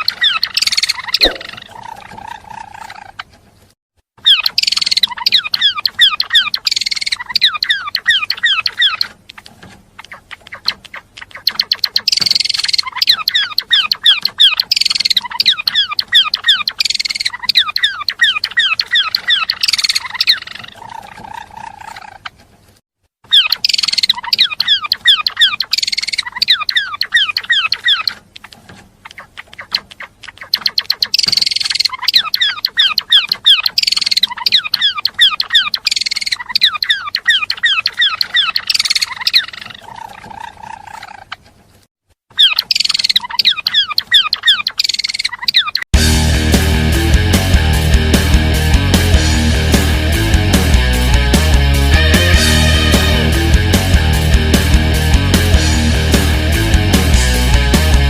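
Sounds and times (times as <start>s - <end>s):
songbird chirping and trilling: 0.0s - 3.3s, 4.2s - 22.4s, 23.3s - 41.4s, 42.3s - 45.9s.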